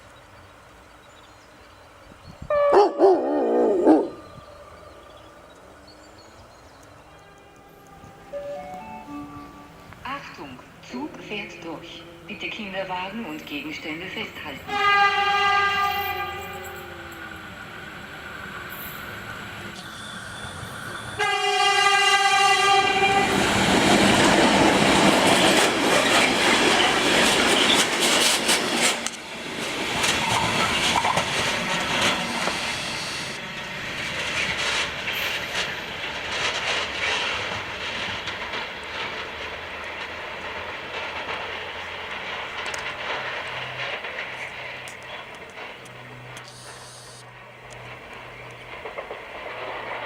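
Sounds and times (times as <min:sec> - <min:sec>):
train horn: 0:02.5 - 0:05.2, 0:07.0 - 0:10.0, 0:14.7 - 0:17.3, 0:21.1 - 0:23.7
train wheels clattering on rails: 0:18.3 - 0:46.8, 0:47.6 - 0:50.0.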